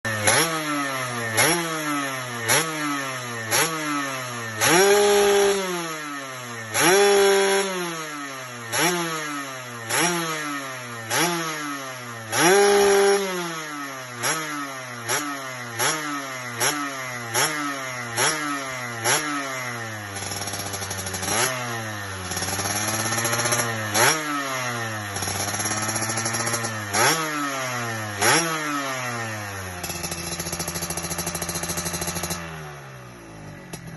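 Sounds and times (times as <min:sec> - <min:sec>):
two-stroke motorcycle engine revving: 0:00.0 - 0:33.9.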